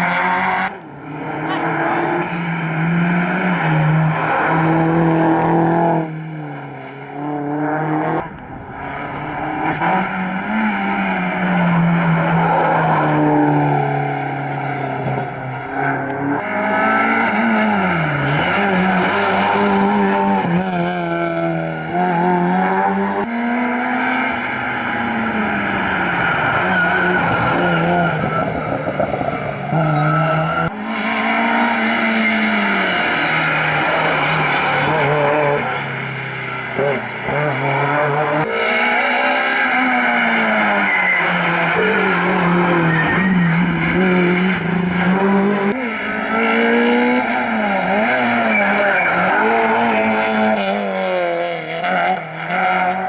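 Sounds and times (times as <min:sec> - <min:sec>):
rally car engines revving: 0:00.0 - 0:53.0
tyre squeal: 0:09.2 - 0:20.3, 0:24.7 - 0:35.8, 0:36.8 - 0:44.7, 0:45.7 - 0:50.8.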